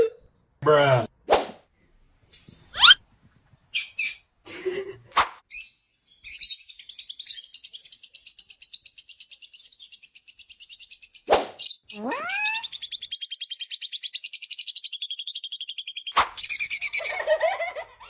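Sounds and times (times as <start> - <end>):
small parrots chirping: 2.7 - 3.0, 3.7 - 4.3, 5.5 - 17.2.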